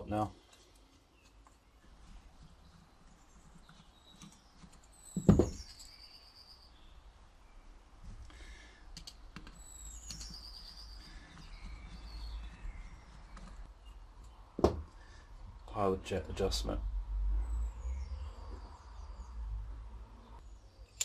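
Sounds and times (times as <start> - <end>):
bird chirping: 0.4 - 8.7, 9.4 - 14.5, 17.4 - 19.6
light clicks of small parts: 8.9 - 10.4.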